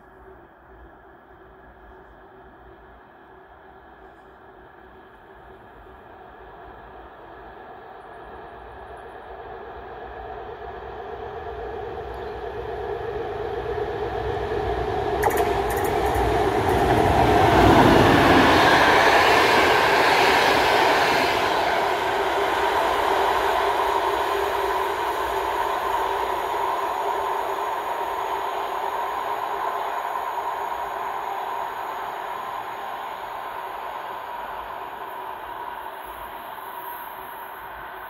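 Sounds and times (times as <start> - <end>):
train wheels rumbling over rails: 13.7 - 32.0
sharp clicks: 15.2 - 16.8
locomotive engine passing: 15.3 - 25.4.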